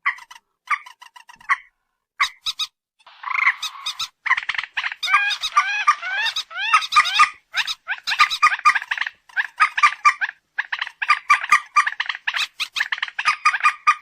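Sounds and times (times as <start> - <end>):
bird calls harsh repeated notes: 0.0 - 14.0.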